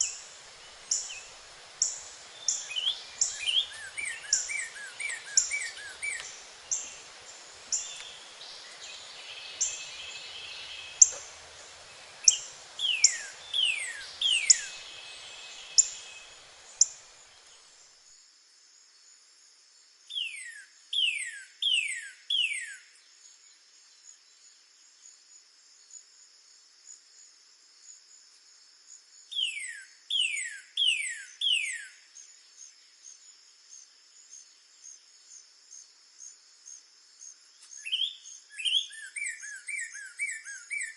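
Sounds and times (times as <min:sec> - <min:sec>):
high insect trill: 0:00.0 - 0:19.2
faint background hiss: 0:00.0 - 0:40.9
bird whistling song: 0:00.9 - 0:07.0, 0:07.7 - 0:11.4, 0:12.0 - 0:17.0, 0:20.1 - 0:22.8, 0:29.3 - 0:32.0, 0:37.7 - 0:40.9.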